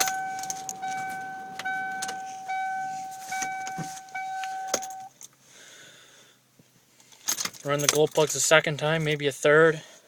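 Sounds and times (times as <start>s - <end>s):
warning chime dinging: 0.0s - 5.1s.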